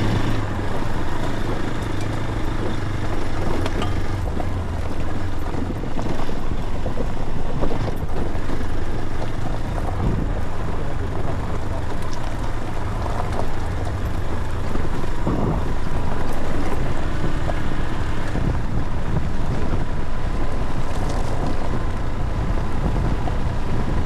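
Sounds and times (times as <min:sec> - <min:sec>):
vehicle drone: 0:00.0 - 0:24.0.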